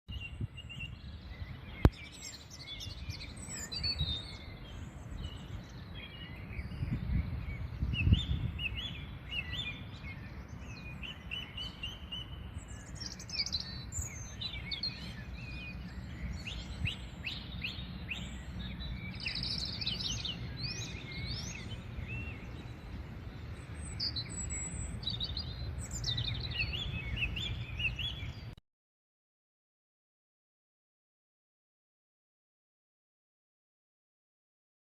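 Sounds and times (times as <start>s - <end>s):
small birds chirping and singing: 0.1s - 28.6s.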